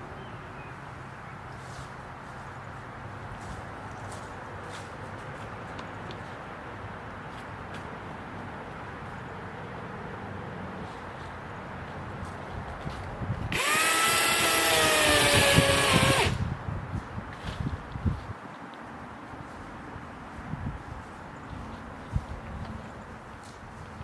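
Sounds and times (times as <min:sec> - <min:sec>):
electric chainsaw cutting wood: 0:13.5 - 0:16.4.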